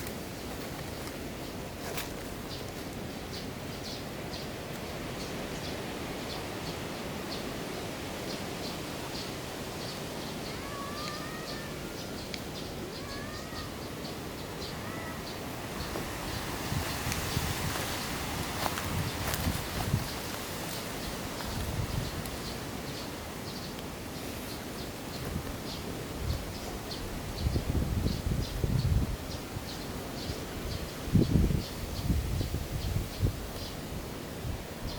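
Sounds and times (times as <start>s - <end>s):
steady rushing hiss: 0.0s - 34.9s
rising-and-falling calls: 10.3s - 17.0s.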